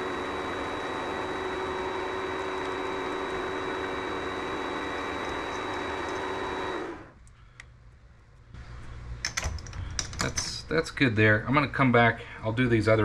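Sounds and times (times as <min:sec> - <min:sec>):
lathe motor whine: 0:00.0 - 0:07.2.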